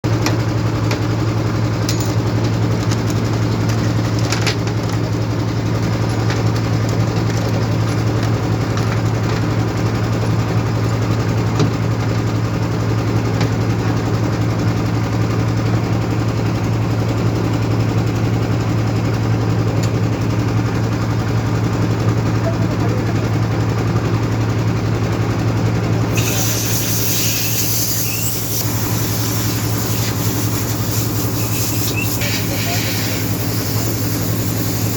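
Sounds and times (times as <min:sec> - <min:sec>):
engine idling: 0:00.1 - 0:34.9
high hiss: 0:26.1 - 0:34.9.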